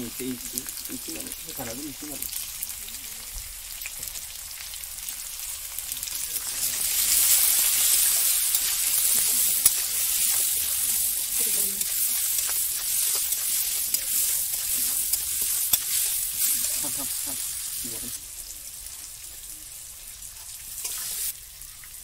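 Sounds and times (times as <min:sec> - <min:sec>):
potato wedges sizzling in a wok: 0:00.0 - 0:22.0
metal spatula clinking and scraping: 0:06.4 - 0:18.1, 0:20.4 - 0:21.3.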